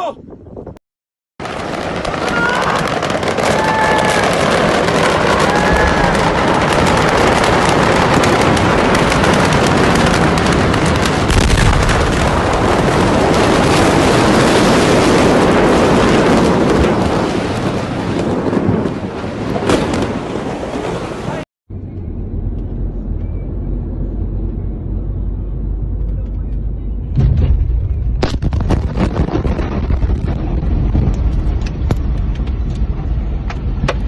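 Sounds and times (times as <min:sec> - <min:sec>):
fireworks popping and crackling: 0:01.4 - 0:20.9, 0:28.2 - 0:34.0
deep boom: 0:02.8 - 0:20.5, 0:27.0 - 0:33.1.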